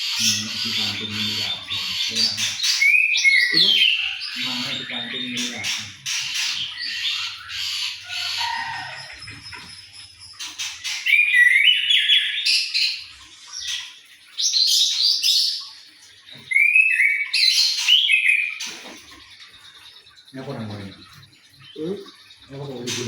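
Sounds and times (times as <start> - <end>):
bird singing whistled phrases: 0.2 - 5.8, 11.0 - 13.0, 16.5 - 18.6.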